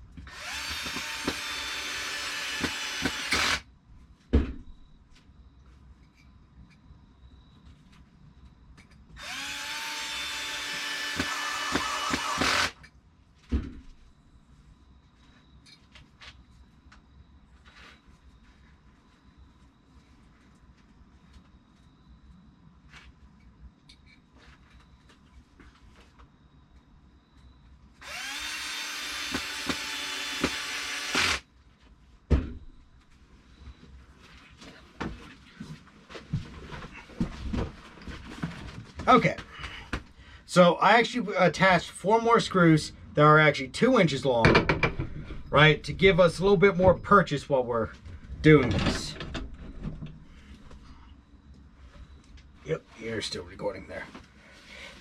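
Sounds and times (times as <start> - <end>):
power drill whine: 0.2 - 3.6, 9.2 - 12.9, 28.0 - 31.4
thump: 4.3 - 4.7, 32.3 - 32.7.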